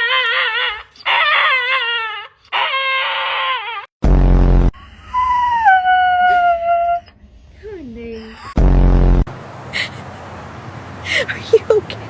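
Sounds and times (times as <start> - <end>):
dog crying: 0.0 - 3.9, 5.0 - 7.2
dog howling: 0.0 - 3.9.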